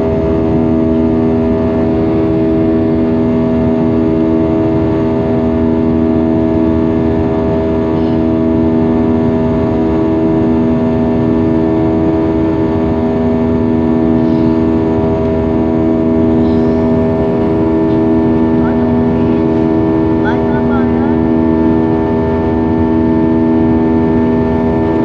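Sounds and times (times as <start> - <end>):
jet engines droning in cabin: 0.0 - 25.0.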